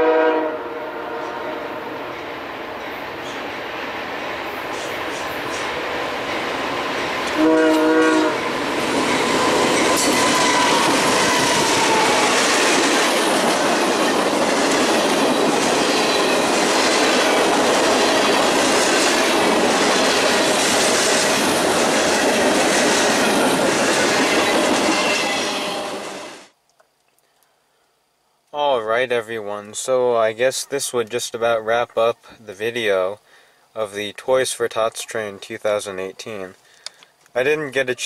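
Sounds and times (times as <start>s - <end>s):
train horn blast: 0.0s - 2.1s, 7.2s - 8.6s, 25.2s - 26.4s
train wheels clattering over rails: 8.6s - 25.6s.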